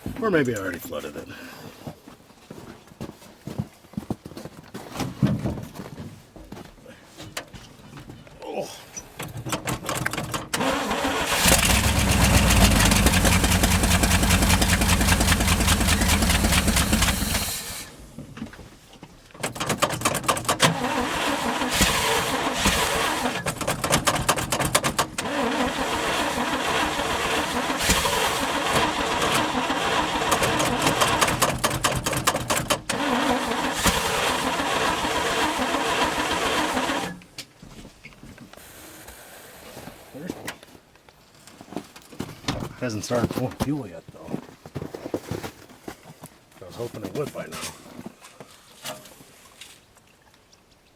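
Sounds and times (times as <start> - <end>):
starter cranking engine: 9.1 - 18.2, 19.4 - 37.3
engine running roughly: 9.8 - 18.1, 19.5 - 37.2.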